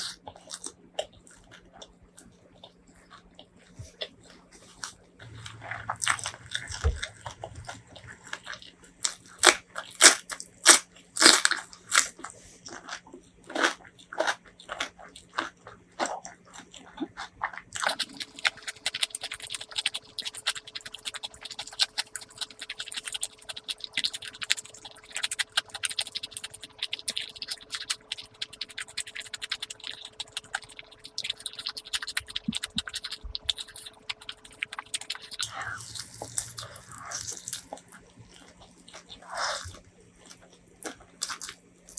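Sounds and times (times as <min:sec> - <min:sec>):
crunchy bites and chewing: 0:08.4 - 0:16.8, 0:17.8 - 0:41.6
soft quick chewing: 0:17.8 - 0:41.6.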